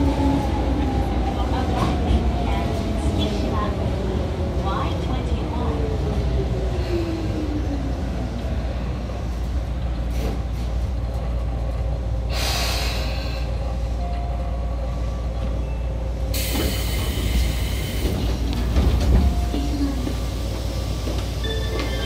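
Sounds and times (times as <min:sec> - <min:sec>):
train rumble in tunnel: 0:00.0 - 0:22.0
air hisses: 0:16.3 - 0:18.6.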